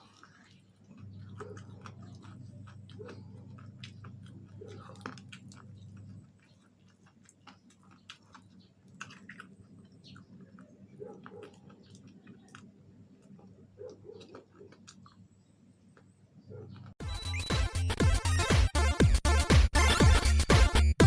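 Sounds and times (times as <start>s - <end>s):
chewing with mouth smacks: 0.0s - 17.0s.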